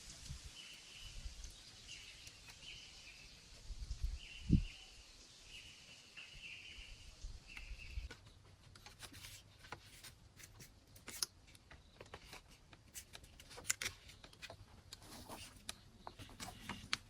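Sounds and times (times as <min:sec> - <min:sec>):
bird chirping: 0:00.5 - 0:08.5.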